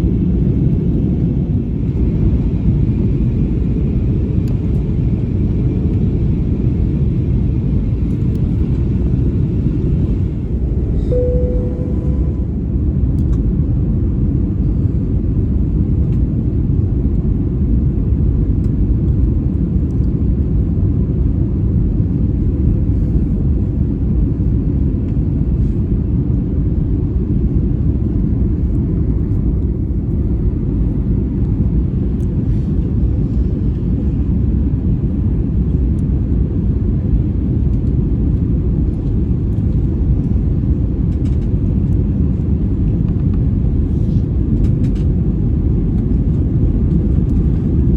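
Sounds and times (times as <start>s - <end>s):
jet engine and airflow rumble: 0.0s - 47.9s
faint steady hum: 8.0s - 16.2s.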